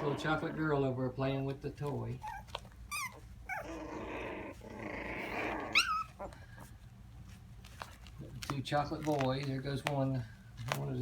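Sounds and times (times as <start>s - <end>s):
puppy whining: 0.0s - 0.9s, 2.1s - 6.9s
puppies growling: 0.0s - 1.2s, 2.1s - 7.0s
puppy yelping: 2.2s - 6.7s.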